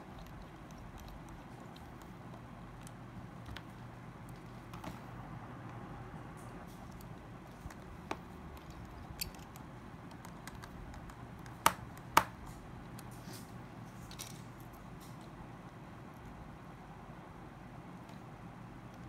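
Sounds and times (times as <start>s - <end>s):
low steady hum: 0.0s - 19.0s
phone parts clicking: 8.5s - 11.6s.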